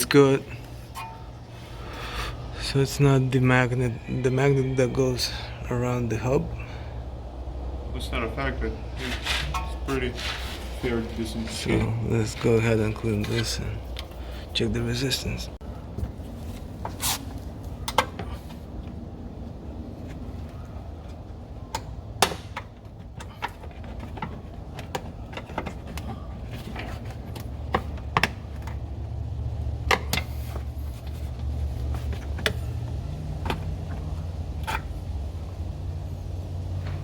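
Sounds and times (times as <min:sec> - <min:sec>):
low steady rumble: 0:00.0 - 0:22.1.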